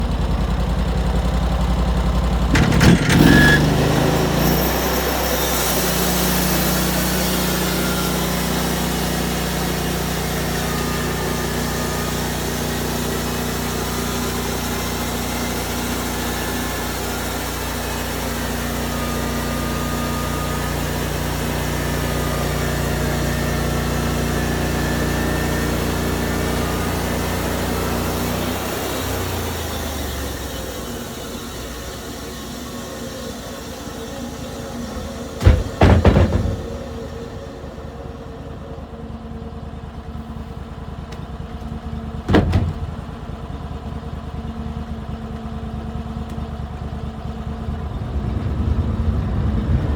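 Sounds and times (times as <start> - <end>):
engine running: 0.0 - 49.9
brief clatter: 2.5 - 3.7.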